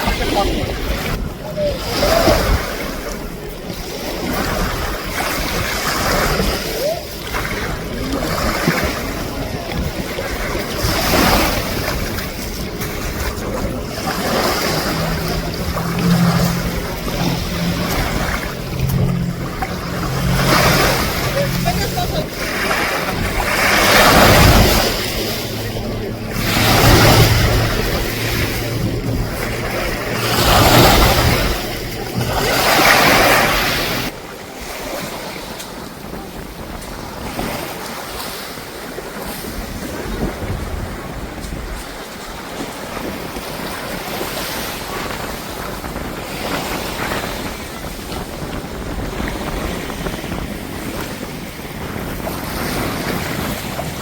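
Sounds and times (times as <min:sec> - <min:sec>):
sea waves washing on beach: 0:00.0 - 0:54.0
wind on microphone: 0:00.0 - 0:54.0
steady low hum: 0:12.2 - 0:34.1.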